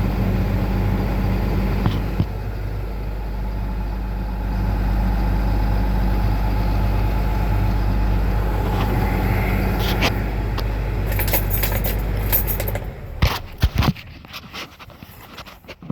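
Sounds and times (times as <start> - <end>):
diesel engine idling: 0.0 - 15.8
light jingling: 11.0 - 13.2.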